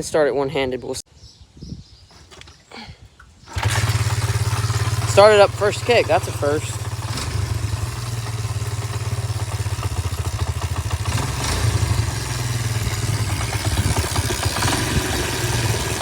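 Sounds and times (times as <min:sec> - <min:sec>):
small motorcycle engine idling: 0:03.4 - 0:16.0.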